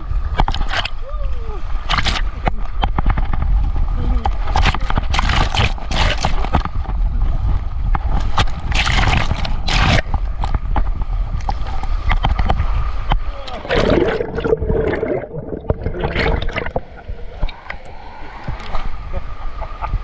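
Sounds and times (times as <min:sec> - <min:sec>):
water rushing and splashing: 0:00.0 - 0:03.4, 0:08.0 - 0:20.0
wind buffeting microphone: 0:00.0 - 0:20.0.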